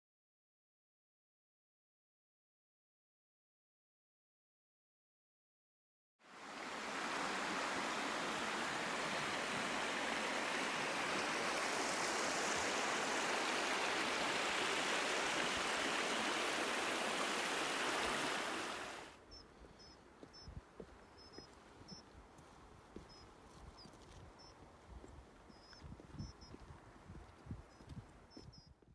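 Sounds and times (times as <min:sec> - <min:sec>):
rushing water: 0:06.2 - 0:19.2
faint high chirps: 0:19.3 - 0:22.1.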